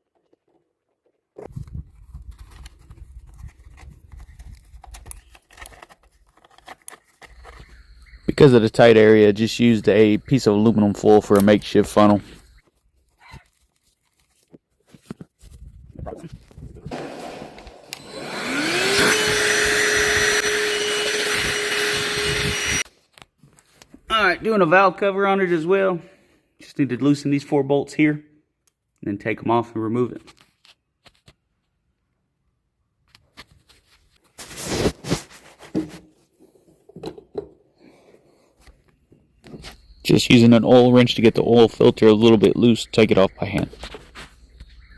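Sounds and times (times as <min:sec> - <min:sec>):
electric motor whine: 0:16.9 - 0:22.8
loud scraping rustle: 0:34.0 - 0:36.0.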